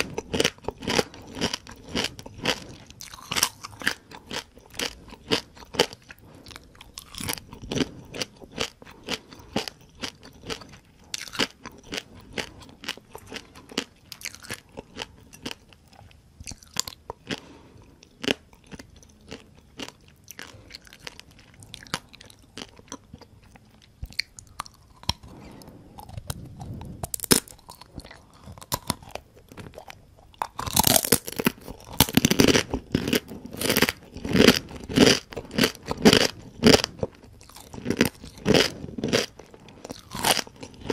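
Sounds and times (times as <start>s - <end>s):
chewing crispy crabs: 0.0s - 40.9s.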